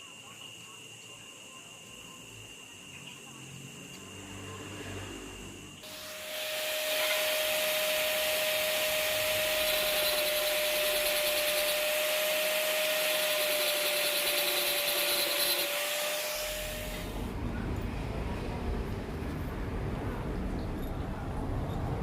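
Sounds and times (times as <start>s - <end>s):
angle grinder on steel: 5.8s - 17.3s.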